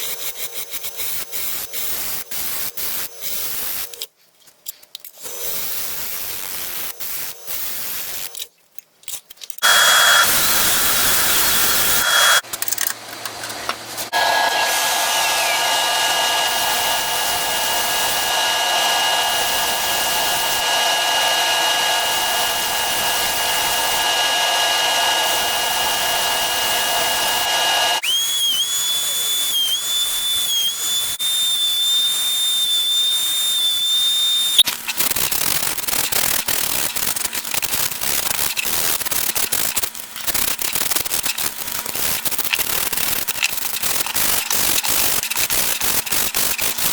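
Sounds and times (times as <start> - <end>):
power tool mechanical hum: 9.6 - 46.9
tool crackling against spinning wood: 29.5 - 46.9.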